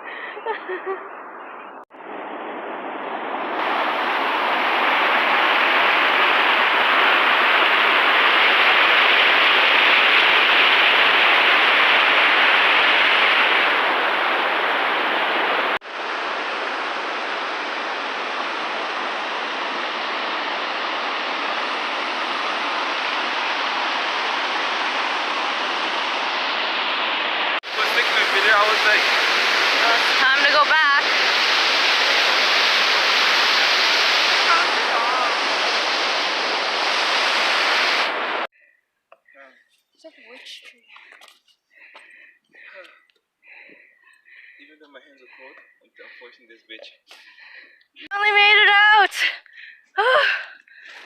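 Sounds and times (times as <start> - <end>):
waterfall rushing: 3.6 - 38.5.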